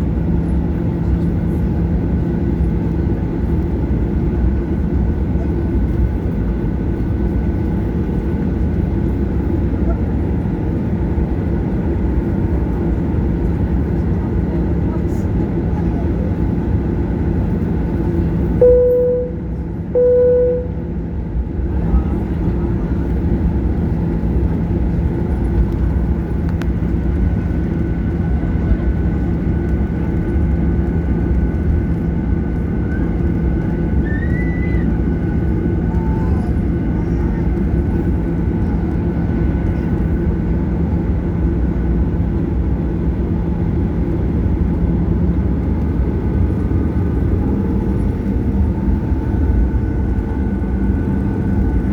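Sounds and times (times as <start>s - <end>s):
airplane cabin drone: 0.0s - 51.9s
short chime tones: 18.6s - 20.9s.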